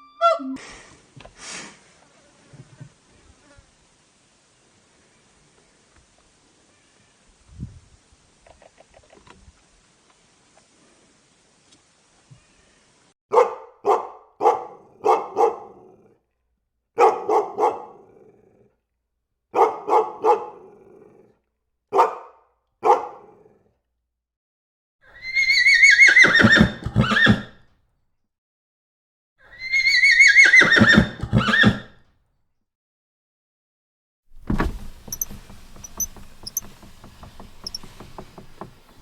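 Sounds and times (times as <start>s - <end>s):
dog barking: 13.3s - 16.2s, 17.0s - 18.4s, 19.5s - 21.2s, 21.9s - 23.6s
horse whinnying: 25.1s - 27.6s, 29.4s - 32.0s.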